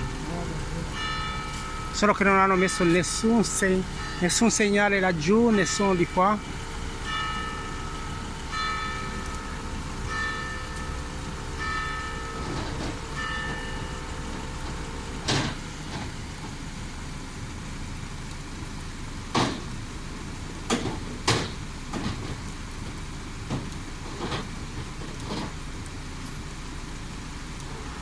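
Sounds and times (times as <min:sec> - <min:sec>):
heavy rain: 0:00.0 - 0:28.0
bell tolling: 0:00.8 - 0:15.3.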